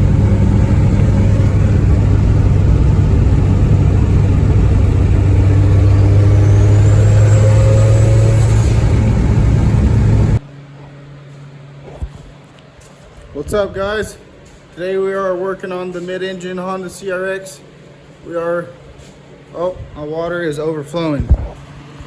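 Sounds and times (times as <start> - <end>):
faint high whine: 0.0 - 10.4
car engine drone: 0.0 - 10.5.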